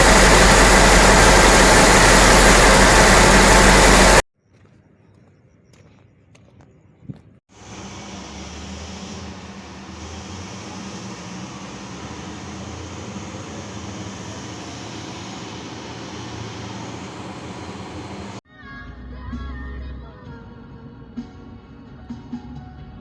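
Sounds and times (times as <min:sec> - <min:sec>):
large diesel engine droning: 0:00.0 - 0:04.2, 0:07.5 - 0:18.4.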